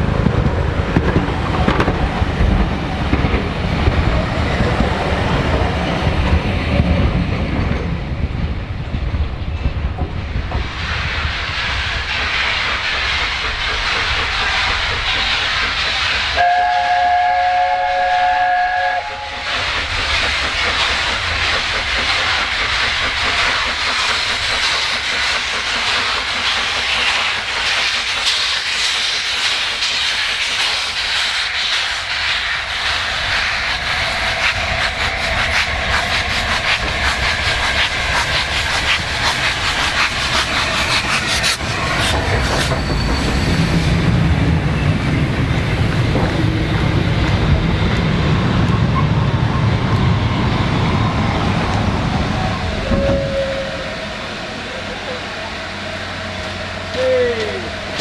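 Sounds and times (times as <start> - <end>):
rail clatter: 0.0 - 17.0, 18.8 - 58.0
steam locomotive hissing and rumbling: 0.0 - 58.0
steam whistle: 16.4 - 19.5, 52.8 - 54.0.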